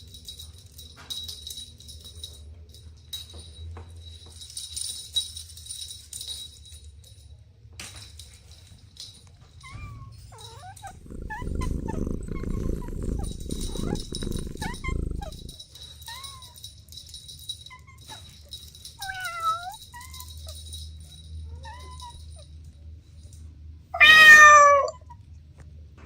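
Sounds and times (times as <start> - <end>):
kittens mewing: 10.8 - 15.6, 24.0 - 25.0
loud low rumbling: 10.9 - 15.5.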